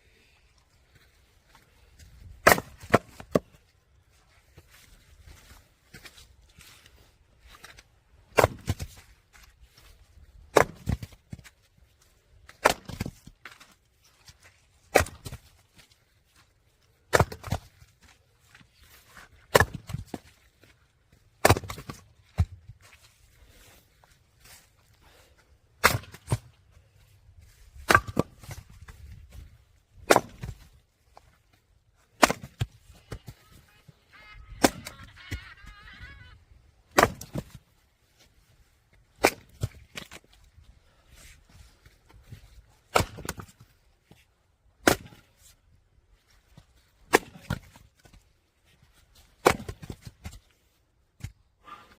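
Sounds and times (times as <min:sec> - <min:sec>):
axe striking firewood: 0:02.3 - 0:03.5, 0:07.7 - 0:09.5, 0:10.5 - 0:11.4, 0:12.5 - 0:13.7, 0:14.9 - 0:15.5, 0:17.1 - 0:17.8, 0:19.4 - 0:20.7, 0:21.4 - 0:22.6, 0:25.8 - 0:26.6, 0:27.8 - 0:30.7, 0:32.1 - 0:33.2, 0:36.9 - 0:37.6, 0:39.2 - 0:40.3, 0:42.3 - 0:43.9, 0:44.8 - 0:45.5, 0:47.0 - 0:48.2, 0:49.4 - 0:50.5
wood cracking and splitting: 0:30.0 - 0:30.8, 0:36.9 - 0:37.6
honk-like call: 0:33.2 - 0:36.4.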